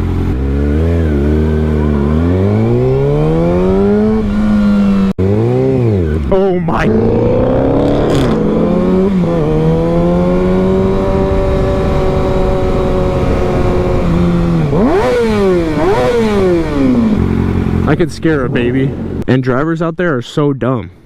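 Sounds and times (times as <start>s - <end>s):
motorcycle engine: 0.0s - 19.4s
wind noise: 6.4s - 19.2s.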